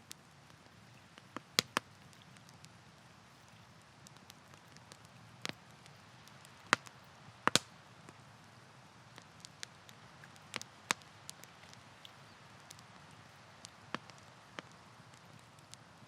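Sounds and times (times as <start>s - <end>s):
campfire crackling and popping: 0.0s - 16.0s
faint steady hiss: 0.0s - 16.0s.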